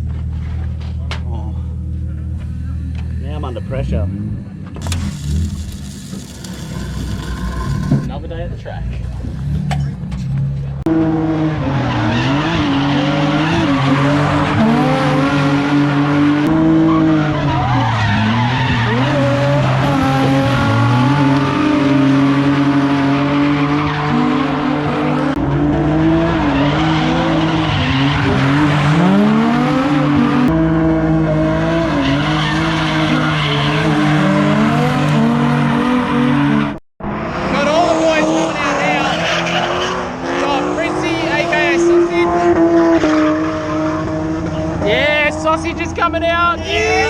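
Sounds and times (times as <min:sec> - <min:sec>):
car engines revving: 0:00.0 - 0:46.6
tyres squealing: 0:04.8 - 0:08.1.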